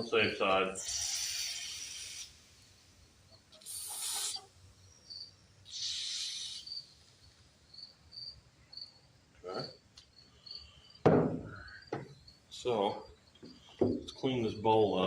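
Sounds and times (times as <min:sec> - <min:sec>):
insects chirping: 0:00.0 - 0:15.0
aerosol spray bursts: 0:03.6 - 0:04.5.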